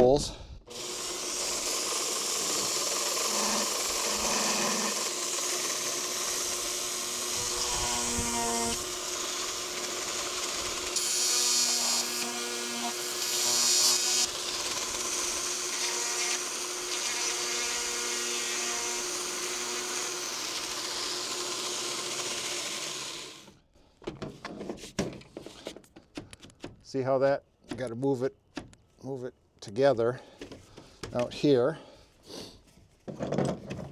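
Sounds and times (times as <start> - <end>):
power tool grinding plastic: 0.7 - 23.6.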